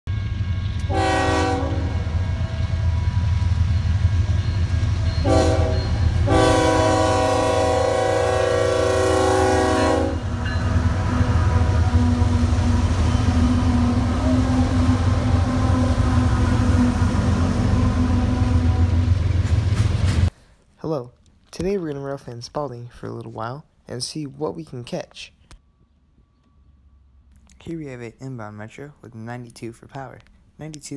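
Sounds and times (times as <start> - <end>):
low rumble of passing train: 0.1 - 20.3, 25.6 - 27.3
train air horn blasts: 0.4 - 2.9, 5.2 - 19.2.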